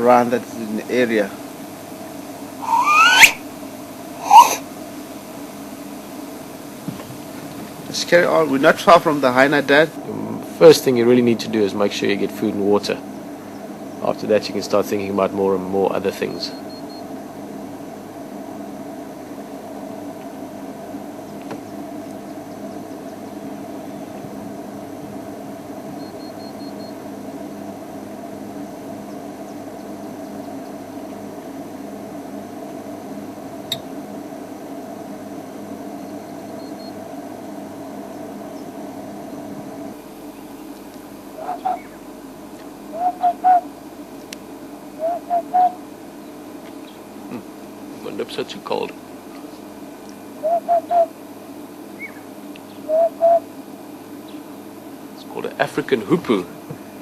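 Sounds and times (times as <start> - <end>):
hoopoe calling: 0.0 - 17.8, 35.4 - 47.9, 49.3 - 55.3
faint high peeps: 2.6 - 3.4, 4.2 - 4.6, 36.0 - 37.0.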